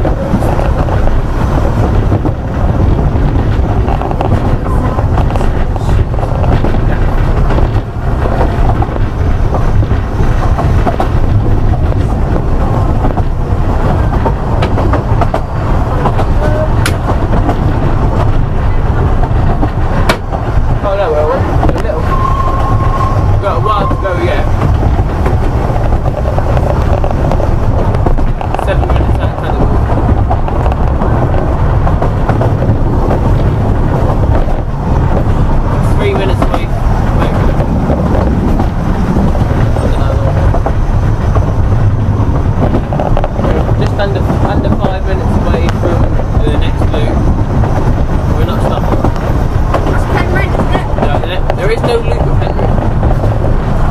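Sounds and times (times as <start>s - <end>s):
train wheels rumbling on track: 0.0s - 53.9s
rapid clicks and rattles: 24.5s - 53.9s.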